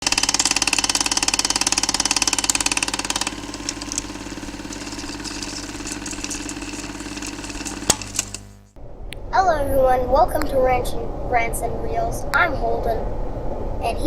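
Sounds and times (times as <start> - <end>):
car engine idling: 0.1 - 8.7.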